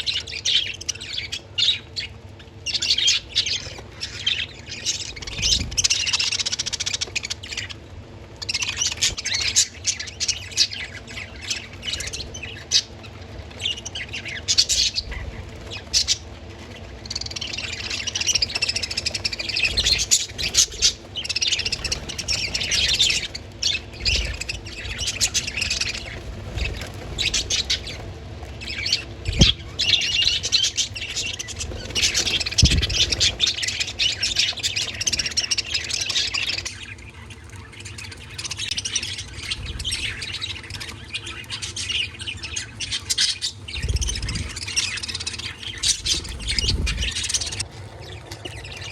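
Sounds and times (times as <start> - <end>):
budgerigars chattering and chirping: 0.0 - 48.9
bird squawks: 8.4 - 47.6.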